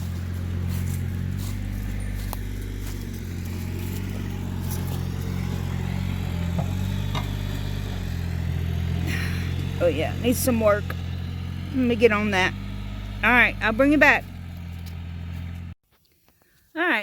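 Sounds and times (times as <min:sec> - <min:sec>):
tractor diesel engine running: 0:00.0 - 0:15.8.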